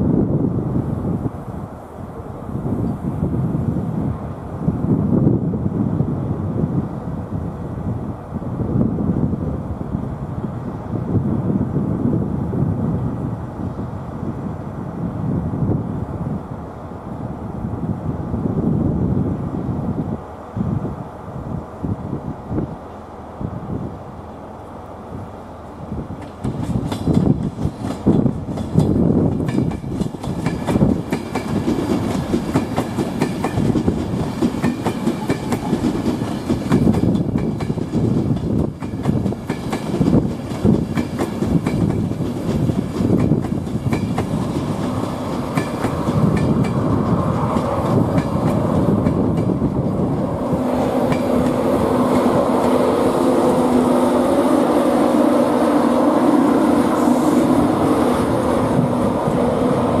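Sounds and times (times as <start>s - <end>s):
train wheels clattering on track: 26.1s - 53.2s.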